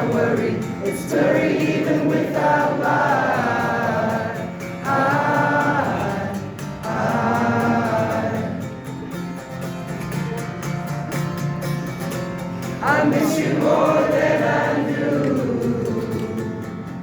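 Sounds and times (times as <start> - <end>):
wordless sung notes: 0.0 - 9.2
acoustic guitar: 0.0 - 17.0.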